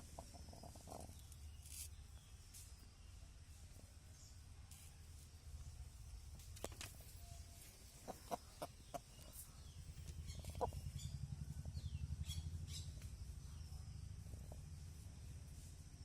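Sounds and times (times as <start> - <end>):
bird calls and chirps: 0.0 - 3.3, 7.0 - 15.4
low pulsing hum: 0.0 - 16.0.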